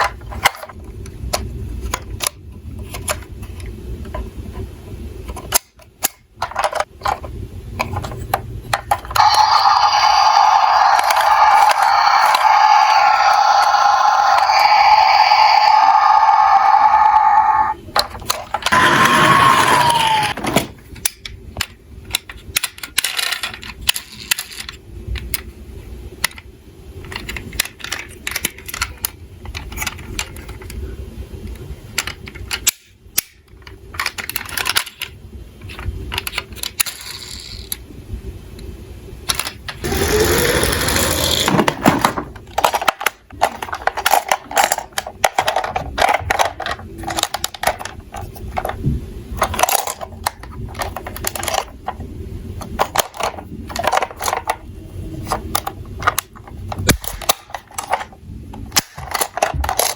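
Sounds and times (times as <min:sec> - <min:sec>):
toy cars clattering down a slope: 0:36.2 - 0:37.8, 0:39.4 - 0:48.8.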